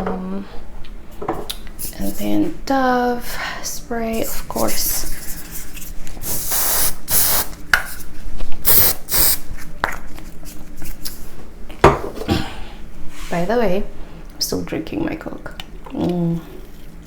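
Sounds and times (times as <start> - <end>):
aerosol spray hissing: 6.2 - 7.5, 8.6 - 9.4.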